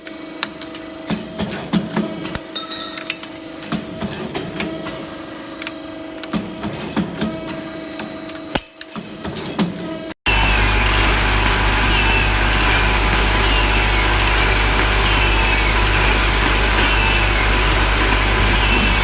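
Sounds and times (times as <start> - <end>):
machinery humming: 10.3 - 19.0.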